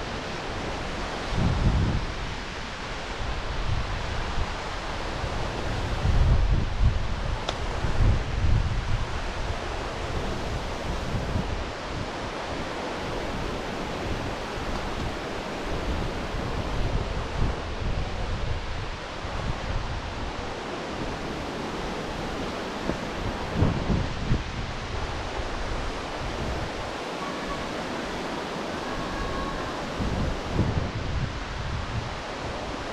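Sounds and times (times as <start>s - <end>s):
wind buffeting microphone: 0.0s - 32.9s
waterfall rushing: 9.0s - 17.9s, 20.0s - 32.9s.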